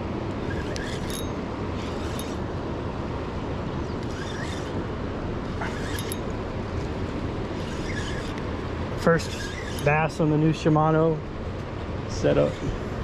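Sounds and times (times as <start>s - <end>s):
steady rushing outdoor noise: 0.0s - 13.0s.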